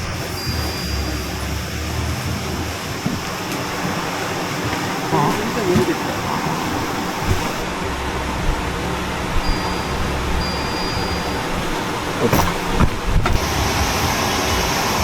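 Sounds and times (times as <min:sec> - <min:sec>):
stream water rushing: 0:00.0 - 0:15.0
low rumble: 0:06.3 - 0:14.9.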